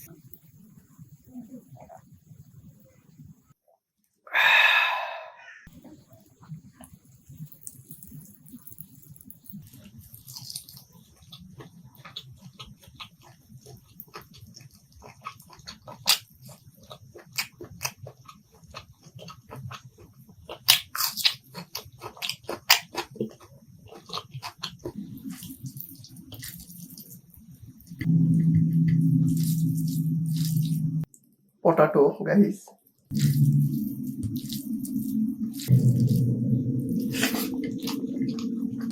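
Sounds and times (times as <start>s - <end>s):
loud steady low hum: 28.0s - 31.1s, 33.1s - 38.9s.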